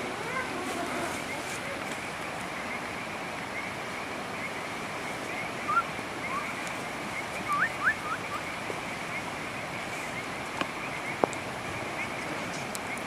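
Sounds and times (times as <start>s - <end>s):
rising whistled calls: 4.4s - 9.3s.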